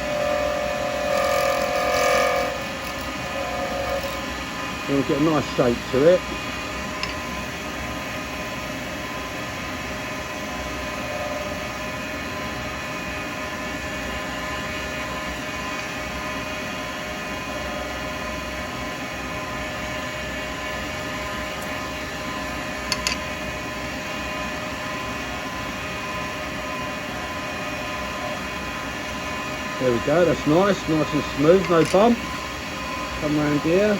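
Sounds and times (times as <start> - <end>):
wood lathe cutting: 0.0 - 7.4, 28.9 - 33.9.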